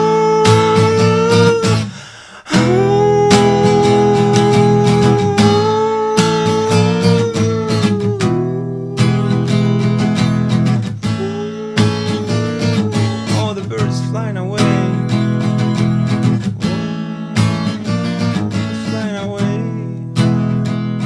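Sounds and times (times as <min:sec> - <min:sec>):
strummed acoustic guitar: 0:00.0 - 0:21.0
person singing wordless note: 0:02.5 - 0:09.8, 0:11.0 - 0:15.7.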